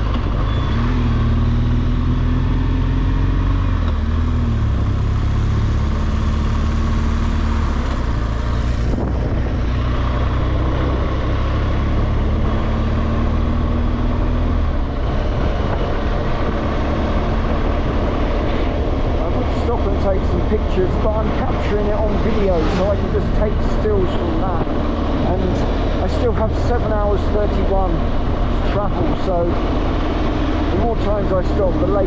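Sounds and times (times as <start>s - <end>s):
wind noise on microphone: 8.1s - 9.9s.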